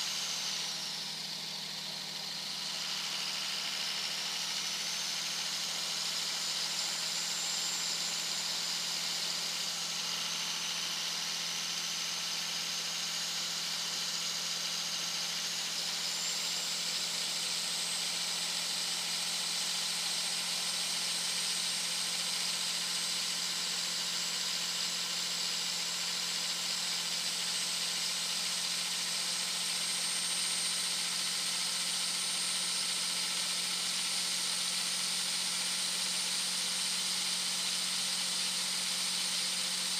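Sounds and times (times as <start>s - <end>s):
turbocharger whistling: 0.0s - 21.8s.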